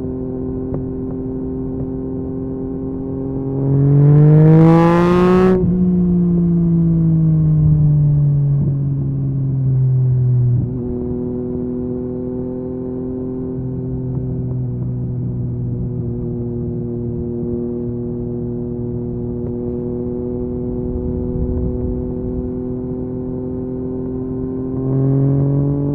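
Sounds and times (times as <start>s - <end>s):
motorcycle engine revving: 17.1s - 25.9s.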